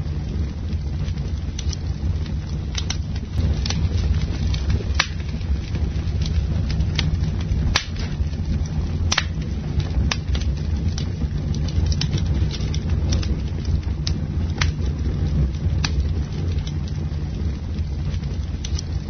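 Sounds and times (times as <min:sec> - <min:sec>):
burning wood crackling: 0:00.0 - 0:19.0
campfire low rumble: 0:00.0 - 0:19.0.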